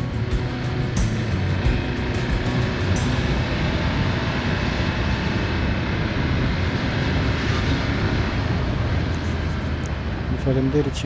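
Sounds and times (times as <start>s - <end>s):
motorcycle engine: 0.0s - 5.2s
wind noise on microphone: 0.0s - 10.8s.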